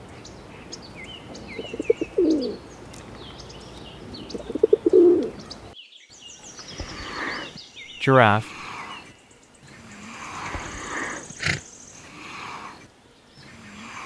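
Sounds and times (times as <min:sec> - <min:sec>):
small birds chirping: 0:00.0 - 0:14.0
pigeon cooing: 0:01.5 - 0:02.6, 0:04.3 - 0:05.4.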